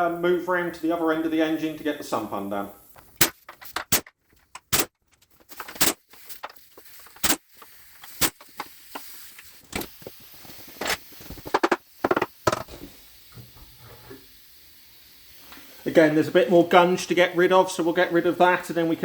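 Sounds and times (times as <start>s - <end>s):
tools knocking and clicking: 3.0s - 6.5s, 10.8s - 12.8s.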